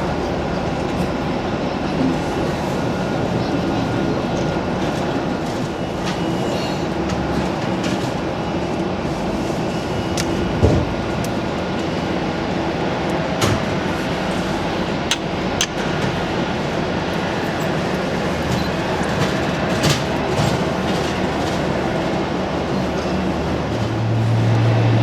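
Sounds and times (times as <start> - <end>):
sharp clicks: 15.1 - 15.8.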